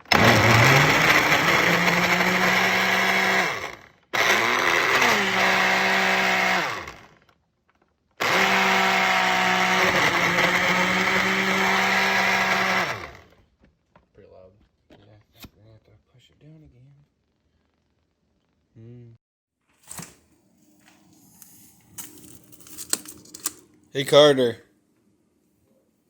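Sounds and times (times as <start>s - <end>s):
blender motor whining: 0.0s - 7.3s, 8.2s - 13.4s.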